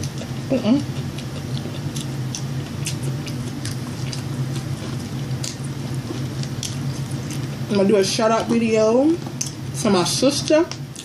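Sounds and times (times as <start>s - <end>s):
close chewing with wet mouth clicks: 0.0s - 7.6s
steady low hum: 0.0s - 11.0s.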